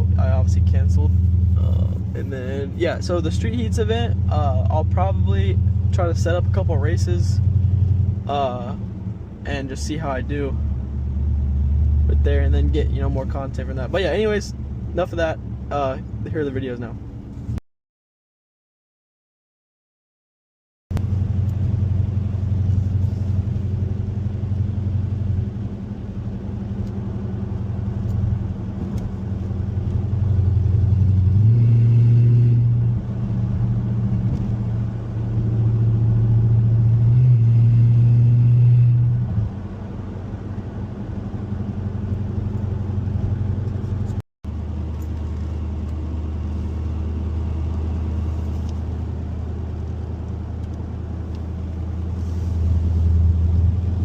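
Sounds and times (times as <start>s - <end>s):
car engine revving: 21.0s - 54.0s.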